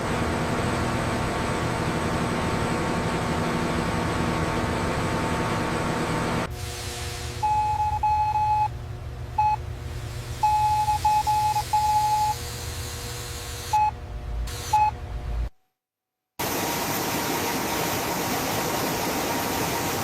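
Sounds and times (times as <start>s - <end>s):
low hum: 2.2s - 15.5s
electronic beeps: 10.4s - 12.4s.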